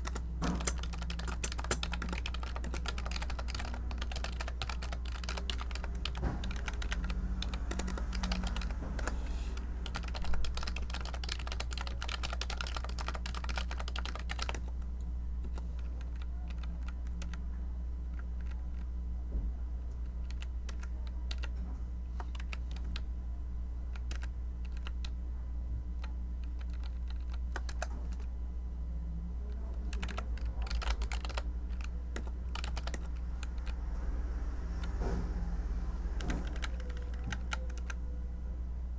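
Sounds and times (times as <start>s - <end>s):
typing on computer keyboard: 0.0s - 14.8s, 15.4s - 17.4s, 20.1s - 21.6s, 22.2s - 23.0s, 23.9s - 25.2s, 26.0s - 28.3s, 29.8s - 33.9s, 36.1s - 38.0s
steady low hum: 0.0s - 38.9s.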